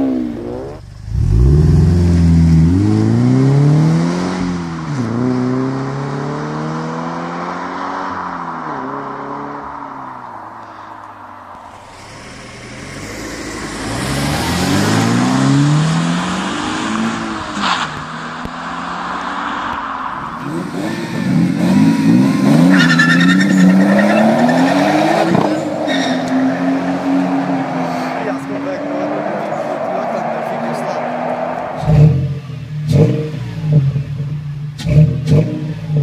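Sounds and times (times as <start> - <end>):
car engine revving hard: 11.9 - 17.9, 20.4 - 36.0.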